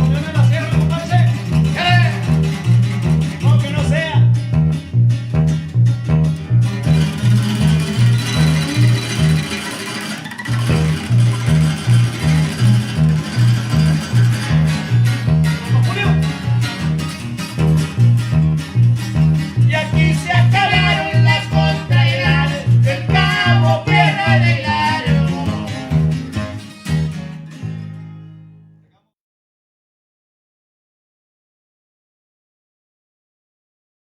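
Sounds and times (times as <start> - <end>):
bass line: 0.0 - 29.0
strummed guitars: 0.0 - 29.0
wavering lead melody: 4.3 - 27.2.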